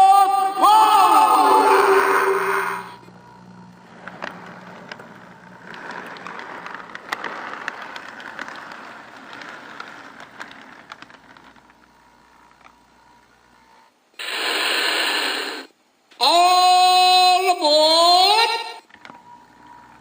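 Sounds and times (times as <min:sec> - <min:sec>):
loud burst of noise: 0:00.0 - 0:03.0, 0:14.2 - 0:16.9
model train rolling rumble: 0:03.9 - 0:11.9
wheel clicks: 0:04.0 - 0:11.9.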